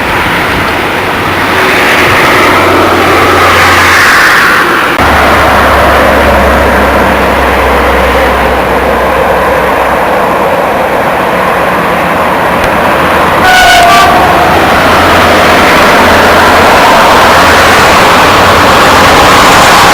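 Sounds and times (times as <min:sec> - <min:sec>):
train wheels rattling on rail: 0:00.0 - 0:19.9
train horn blast: 0:13.4 - 0:14.6.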